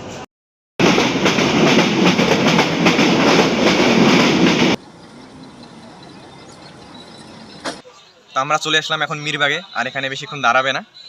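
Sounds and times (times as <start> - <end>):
train rumbling: 0.8 - 7.8
wheels clattering over rail joints: 0.8 - 7.8.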